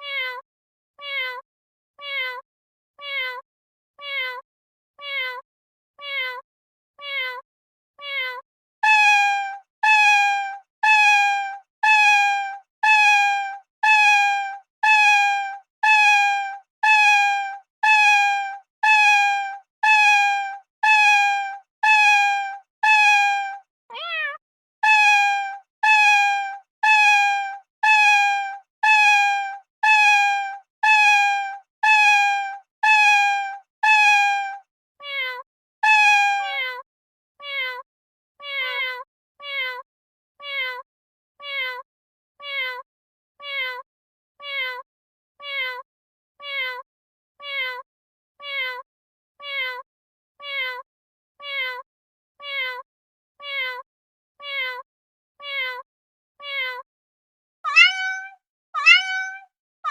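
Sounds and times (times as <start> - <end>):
cat meowing: 0.0 - 0.4, 1.0 - 1.4, 2.0 - 2.4, 3.0 - 3.4, 4.0 - 4.4, 5.0 - 5.4, 6.0 - 6.4, 7.0 - 7.4, 8.0 - 9.2, 12.8 - 34.4, 35.0 - 36.8, 37.4 - 37.8, 38.4 - 39.8, 57.7 - 59.9.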